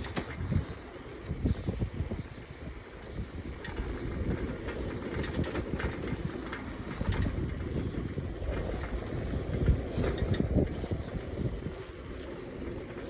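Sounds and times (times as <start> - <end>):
bike rolling on rough surface: 0.0 - 13.0.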